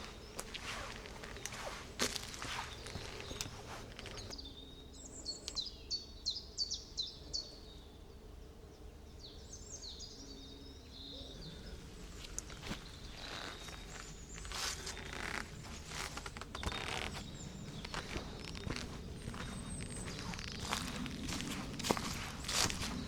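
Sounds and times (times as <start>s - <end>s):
footsteps crunching on forest floor: 0.0s - 4.4s, 11.9s - 23.0s
songbird singing: 0.0s - 23.0s.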